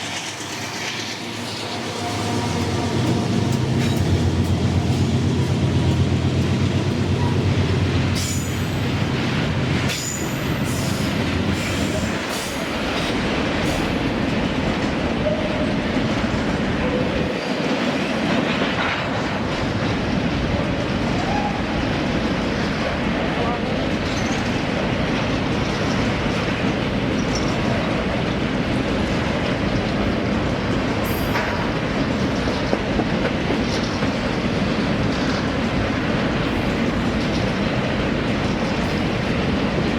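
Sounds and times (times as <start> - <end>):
train wagons rumbling on rails: 0.0 - 39.9
high-pitched squeals: 0.2 - 5.0.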